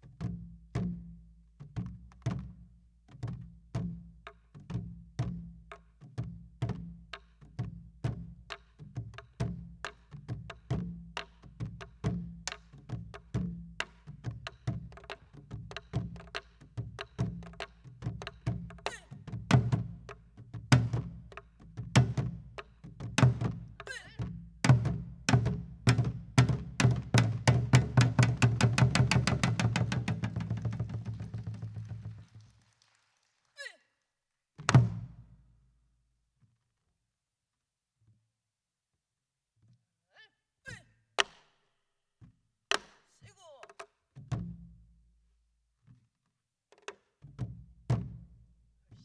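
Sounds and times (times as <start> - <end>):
deep barrel drum strokes: 24.6 - 32.4.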